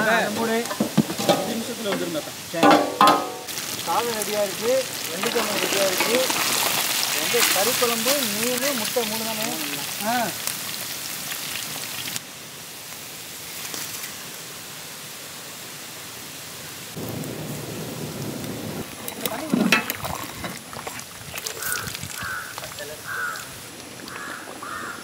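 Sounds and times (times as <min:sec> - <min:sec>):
pot of curry boiling: 0:00.0 - 0:12.2, 0:18.8 - 0:25.0
fish frying in hot oil: 0:00.0 - 0:14.9, 0:18.5 - 0:25.0
steady hiss: 0:00.0 - 0:25.0
sharp knocks: 0:02.6 - 0:03.5.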